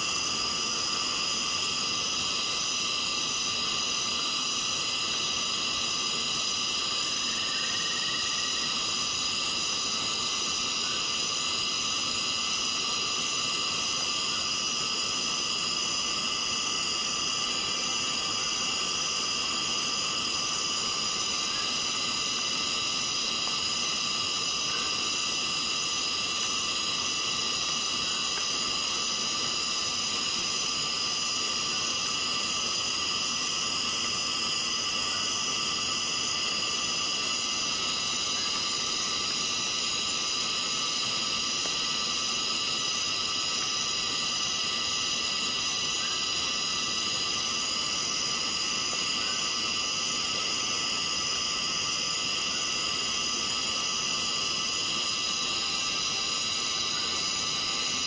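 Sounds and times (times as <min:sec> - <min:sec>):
insect chorus: 0:00.0 - 0:58.0.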